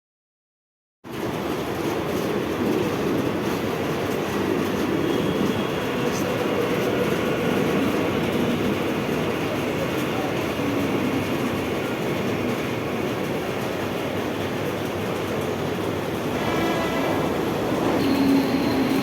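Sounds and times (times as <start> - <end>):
train wheels rumbling on rails: 1.0 - 19.0.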